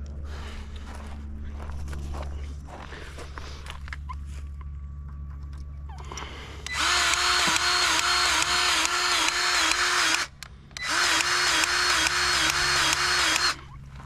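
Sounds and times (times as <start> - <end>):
battery grease gun pumping: 6.6 - 13.6.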